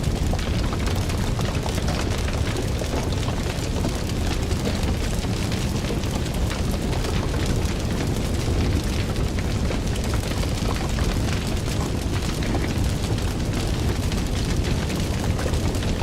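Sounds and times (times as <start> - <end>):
fire burning with crackles: 0.0 - 16.0.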